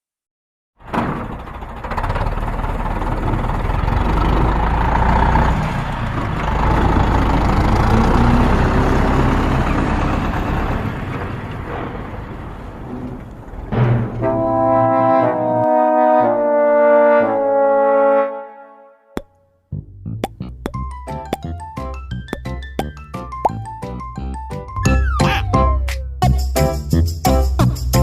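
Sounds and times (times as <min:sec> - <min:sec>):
heavy vehicle engine rumbling: 0:00.8 - 0:17.7.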